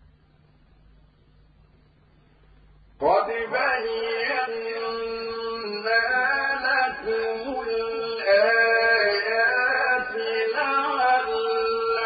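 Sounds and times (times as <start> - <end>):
man chanting melodically: 3.0 - 12.0.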